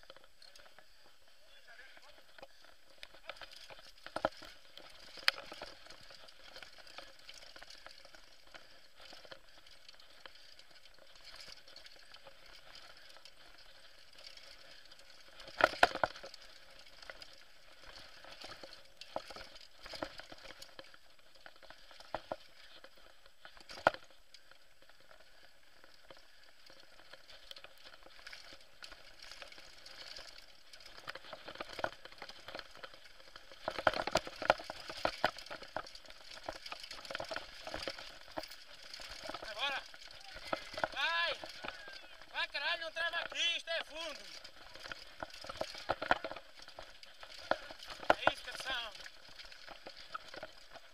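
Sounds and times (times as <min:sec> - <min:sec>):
tyres crackling on loose ground: 0:00.0 - 0:50.9.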